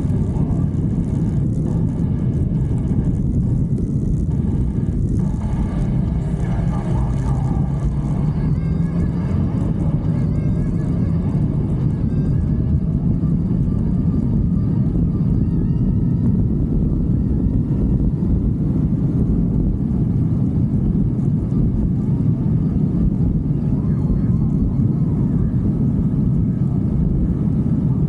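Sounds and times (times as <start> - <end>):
motorcycle engine running: 0.0 - 18.5
wind rushing on microphone: 0.0 - 28.0.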